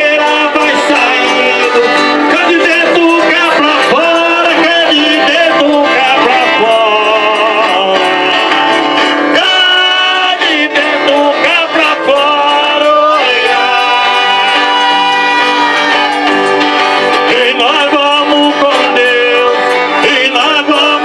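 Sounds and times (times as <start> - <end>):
button accordion playing: 0.0 - 21.0
string instruments: 0.0 - 21.0.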